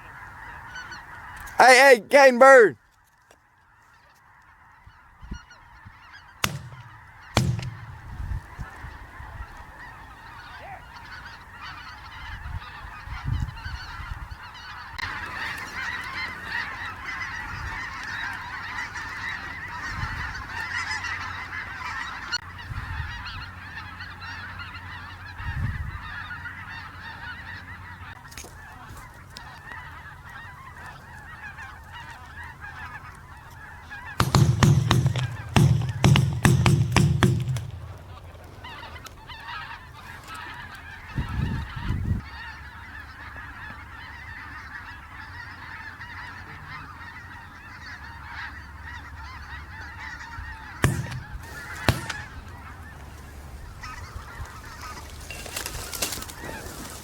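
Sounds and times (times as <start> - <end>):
geese honking: 0.0 - 2.8, 3.5 - 57.0
sharp knocks: 6.4 - 8.2, 34.2 - 38.2, 50.8 - 52.5.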